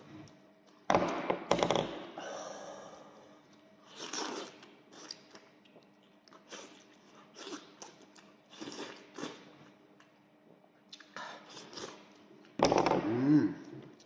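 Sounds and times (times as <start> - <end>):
person chewing and smacking: 4.0 - 9.4, 10.9 - 12.3.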